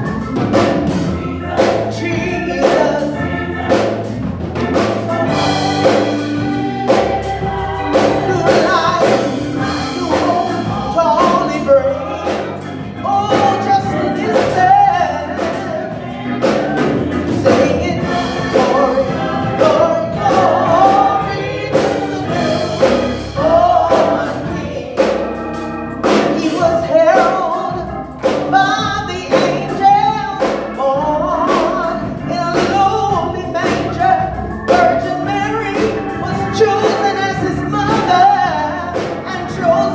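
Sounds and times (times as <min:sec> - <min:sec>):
band accompaniment with steady beat: 0:00.0 - 0:39.9
gospel choir singing: 0:00.0 - 0:39.9.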